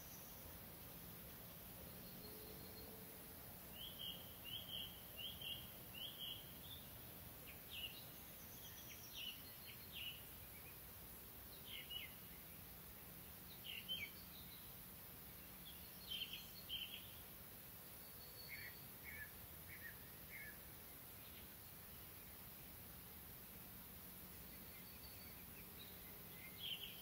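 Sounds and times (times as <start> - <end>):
faint background hiss: 0.0 - 27.0
songbird chirping: 0.0 - 27.0.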